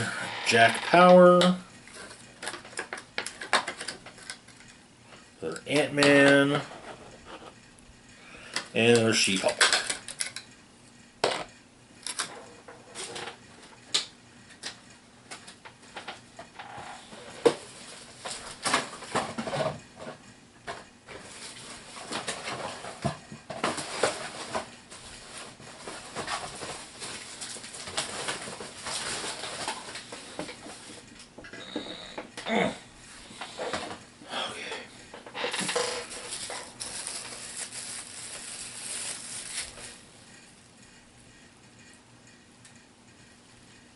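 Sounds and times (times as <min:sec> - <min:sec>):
plastic wrapping crinkling: 0:23.8 - 0:31.0, 0:35.6 - 0:40.3.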